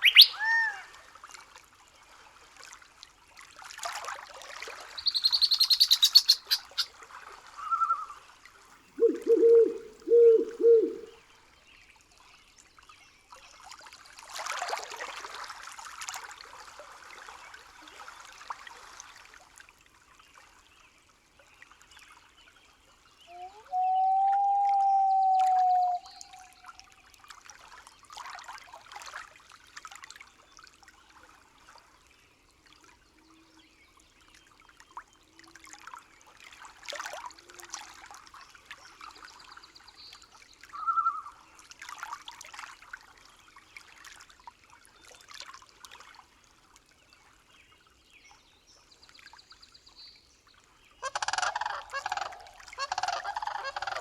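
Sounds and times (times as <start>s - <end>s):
many birds calling together: 0.0s - 0.6s, 5.0s - 6.9s, 51.0s - 54.0s
short bird calls: 0.0s - 0.9s, 5.0s - 6.9s, 9.0s - 11.1s.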